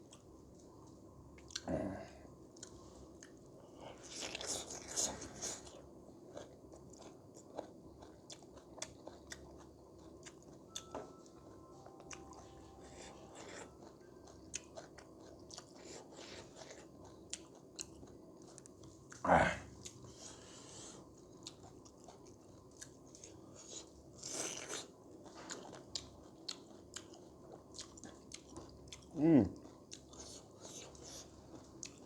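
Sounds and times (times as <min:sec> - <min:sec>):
person chewing and biting: 0:04.0 - 0:10.8, 0:11.9 - 0:19.2, 0:21.4 - 0:31.2.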